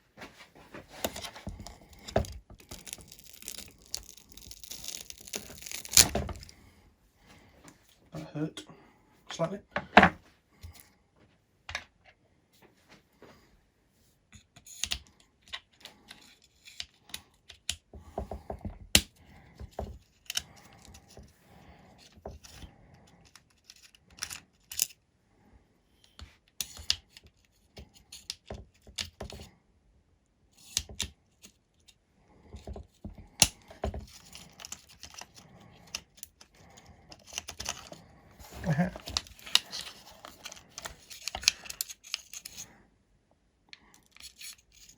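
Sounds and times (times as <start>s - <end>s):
small tools clicking and rattling: 32.6s - 42.7s.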